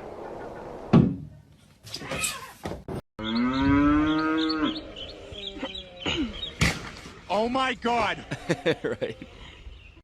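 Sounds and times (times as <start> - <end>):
loud thump: 0.9 - 1.3.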